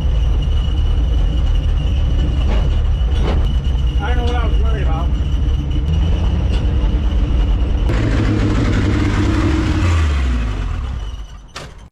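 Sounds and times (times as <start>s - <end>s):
car engine running: 3.4s - 11.2s.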